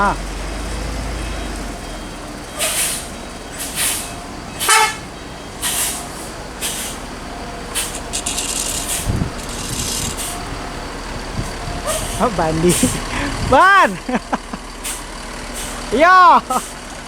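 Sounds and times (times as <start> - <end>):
low engine rise: 0.0 - 17.0
air hissing bursts: 2.6 - 5.0, 5.6 - 7.1, 7.7 - 10.5, 14.8 - 15.8
short horn toot: 4.6 - 5.0.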